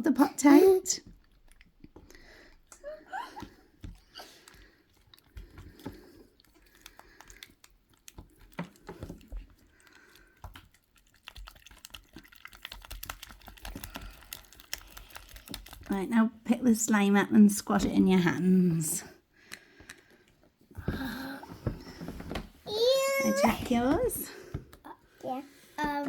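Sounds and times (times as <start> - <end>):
soft wet squelches: 0.4 - 26.0
stirrer clicking against pot: 3.4 - 16.0.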